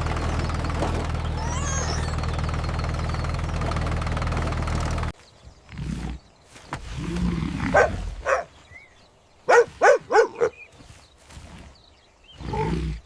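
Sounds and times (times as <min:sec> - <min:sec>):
cartoon dog barking and yelping: 0:07.7 - 0:08.5, 0:09.5 - 0:10.6.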